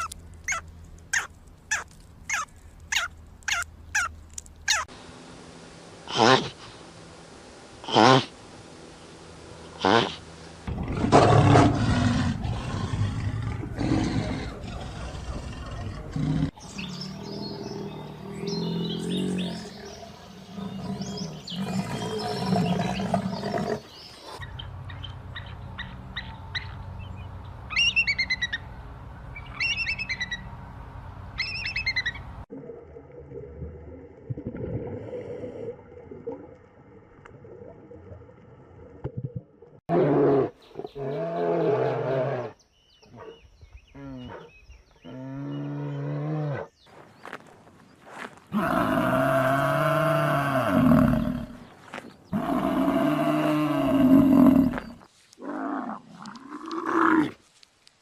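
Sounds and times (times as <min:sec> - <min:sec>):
bird chirping: 0:16.6 - 0:30.7, 0:31.3 - 0:32.3.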